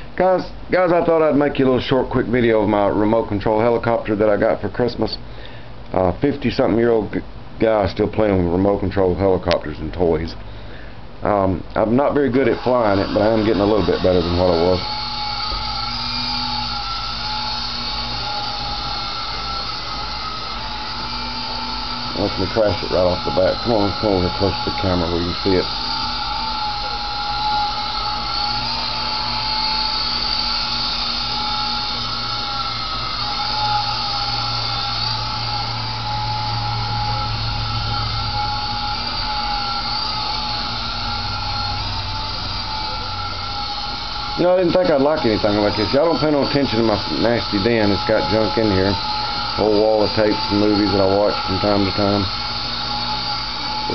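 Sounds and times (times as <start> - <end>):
toy helicopter rotors whirring: 12.3 - 53.9.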